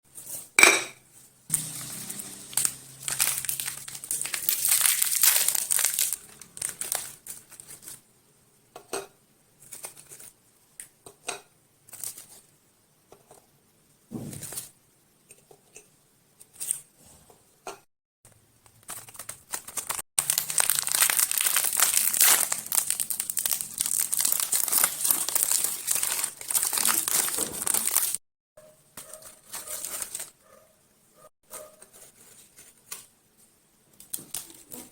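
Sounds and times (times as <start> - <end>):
plastic wrappers crinkling: 1.5 - 8.1, 18.9 - 28.2, 29.0 - 30.4, 33.9 - 34.9.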